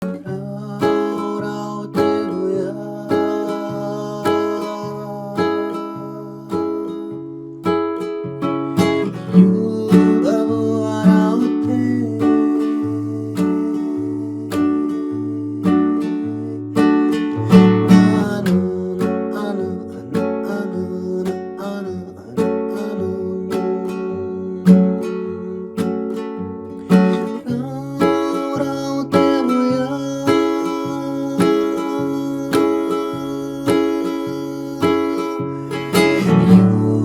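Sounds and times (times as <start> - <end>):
acoustic guitar strumming chords: 0.0 - 37.0.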